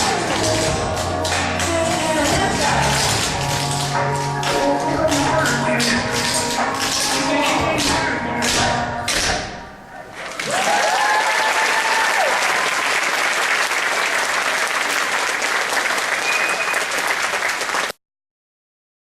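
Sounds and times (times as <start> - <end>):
audience applauding: 10.1 - 18.0
people whooping: 10.2 - 13.2.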